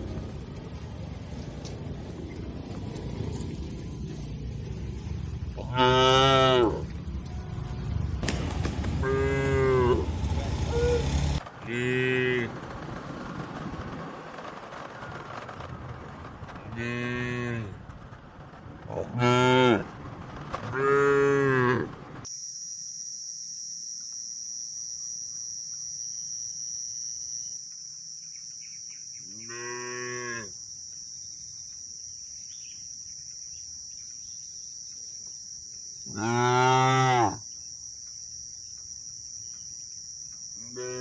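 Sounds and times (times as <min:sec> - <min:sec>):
cattle mooing: 0:05.6 - 0:06.8, 0:09.0 - 0:10.1, 0:29.3 - 0:30.5, 0:36.1 - 0:37.4, 0:40.7 - 0:41.0
high-pitched drone: 0:22.3 - 0:29.2.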